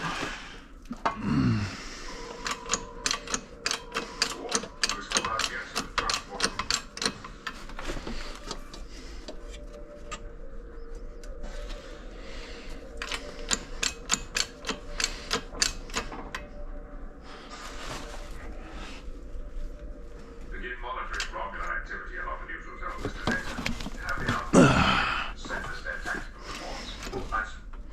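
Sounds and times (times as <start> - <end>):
rapid clicking and ticking: 2.3 - 7.7.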